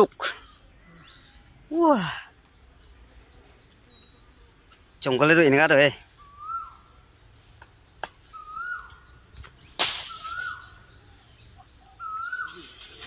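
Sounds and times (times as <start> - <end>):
bird whistled call: 6.2 - 7.0, 8.3 - 9.2, 9.9 - 13.0
leaves rustling: 8.1 - 11.0, 12.0 - 13.0
sharp crack: 9.4 - 10.9.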